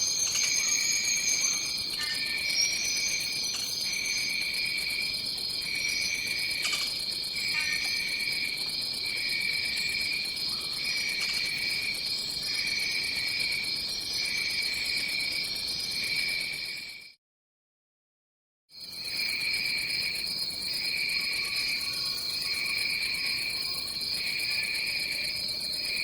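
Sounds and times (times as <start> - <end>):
fast high insect trill: 0.0 - 8.6
pulsing insect chirp: 0.0 - 16.3
insect high drone: 0.0 - 16.9, 18.9 - 26.0.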